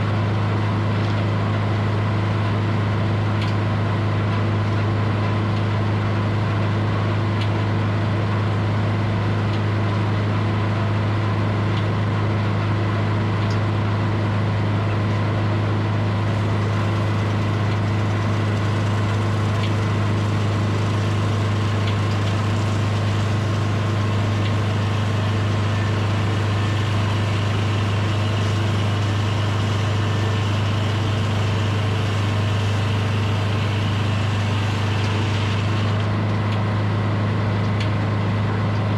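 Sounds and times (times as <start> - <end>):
sawmill engine humming: 14.1 - 37.6.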